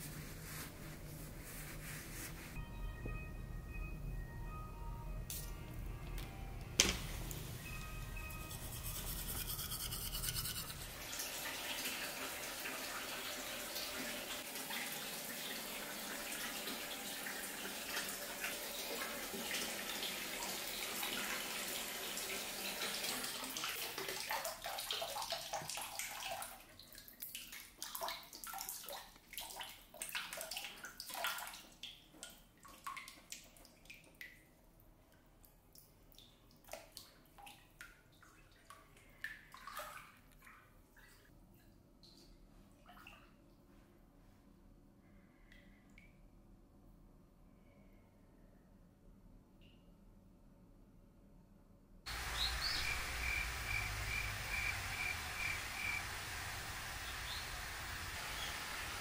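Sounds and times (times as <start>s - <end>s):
water running from a tap: 9.4s - 26.6s, 52.1s - 59.0s
water dripping: 22.2s - 34.6s, 35.4s - 43.3s, 52.1s - 59.0s.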